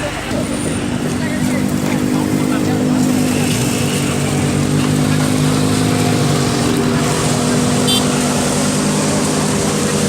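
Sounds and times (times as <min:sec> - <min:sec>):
road noise: 0:00.0 - 0:10.0
vehicle engine running: 0:00.0 - 0:10.0.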